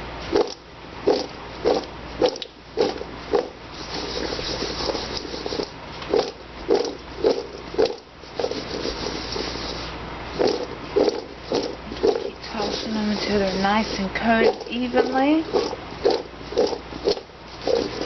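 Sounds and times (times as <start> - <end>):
rustling: 1.1 - 18.0
potatoes tossed in a bowl: 8.4 - 18.0.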